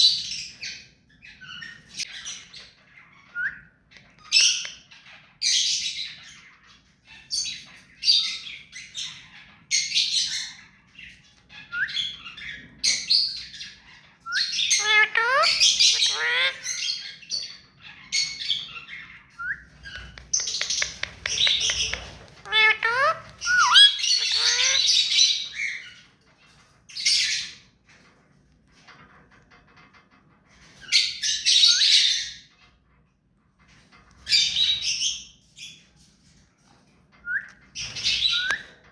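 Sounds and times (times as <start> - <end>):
parakeet squawks and screeches: 4.0 - 28.2, 37.4 - 38.9
parakeet warbling notes: 14.8 - 16.7, 22.4 - 24.9.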